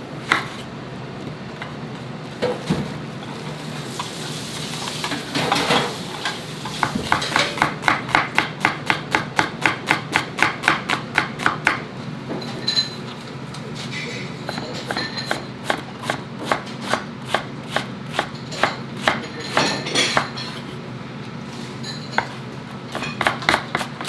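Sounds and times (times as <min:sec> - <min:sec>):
low kitchen hum: 0:00.0 - 0:24.0
knife chopping on cutting board: 0:00.2 - 0:00.7, 0:06.7 - 0:11.8, 0:14.5 - 0:20.8, 0:22.2 - 0:24.0.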